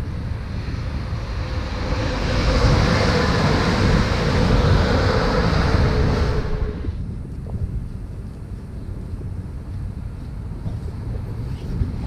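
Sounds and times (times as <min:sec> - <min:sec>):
train passing at speed: 0:00.0 - 0:07.8.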